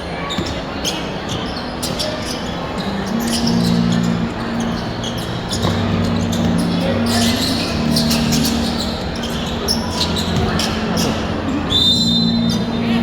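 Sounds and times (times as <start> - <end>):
shoe squeaks: 0.2 - 12.8
low held tones: 2.8 - 13.0
basketball bouncing: 10.4 - 10.8.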